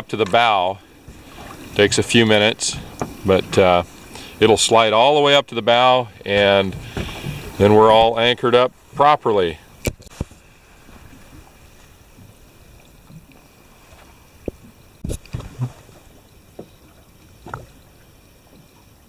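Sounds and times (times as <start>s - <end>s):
knocks and splashes: 0.0s - 9.1s, 9.8s - 18.8s
water lapping against boat hull: 0.0s - 19.0s.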